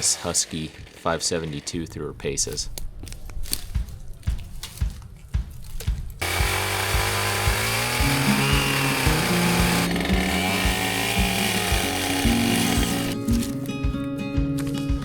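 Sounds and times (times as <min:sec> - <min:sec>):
chainsaw cutting wood: 0:00.0 - 0:01.0, 0:06.2 - 0:13.7
background music with beat: 0:03.7 - 0:15.0.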